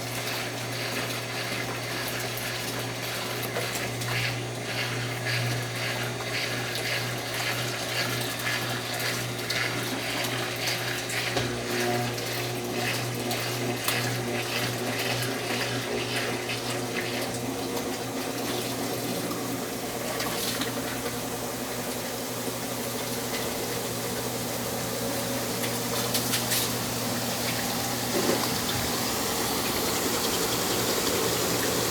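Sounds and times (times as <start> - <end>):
washing machine electric hum: 0.0 - 31.9
water rushing and splashing: 23.0 - 31.9.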